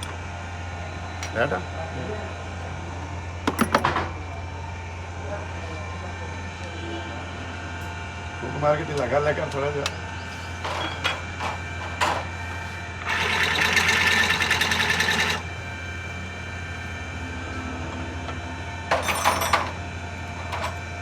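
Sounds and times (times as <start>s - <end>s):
steady low hum: 15.2s - 21.0s.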